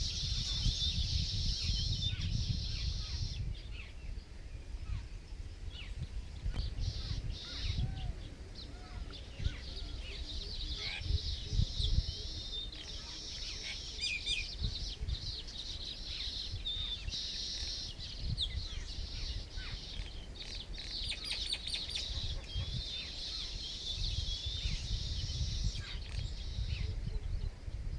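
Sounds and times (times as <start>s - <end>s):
birds chirping: 5.7s - 27.6s.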